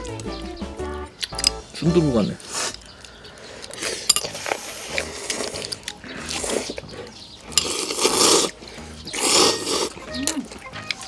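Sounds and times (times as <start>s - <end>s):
noodles being slurped: 2.4s - 11.0s.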